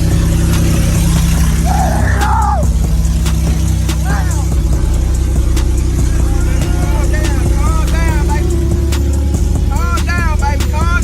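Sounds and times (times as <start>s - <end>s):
engine idling low rumble: 0.0s - 11.0s
music: 0.0s - 11.0s
wailing voice: 1.6s - 2.7s, 4.0s - 4.6s.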